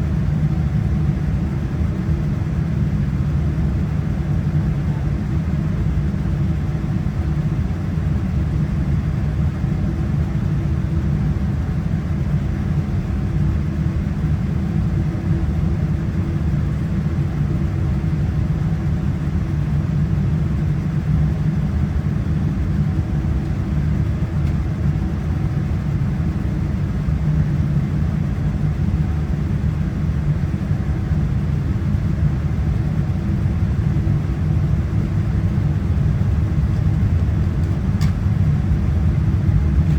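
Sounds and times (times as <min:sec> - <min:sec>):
jet engines low rumble: 0:00.0 - 0:39.9.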